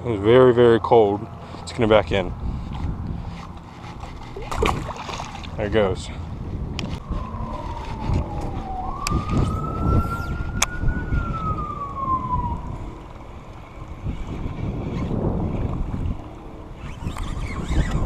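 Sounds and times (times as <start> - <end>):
wind rumbling on microphone: 1.2 - 18.0
siren wailing: 6.8 - 13.9.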